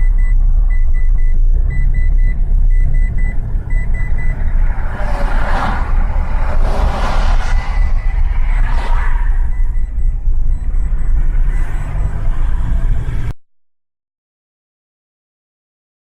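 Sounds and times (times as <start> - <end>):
short high electronic beeps: 0.0 - 12.7
vehicle engine and road noise: 0.0 - 13.4
rushing noise: 3.2 - 13.3.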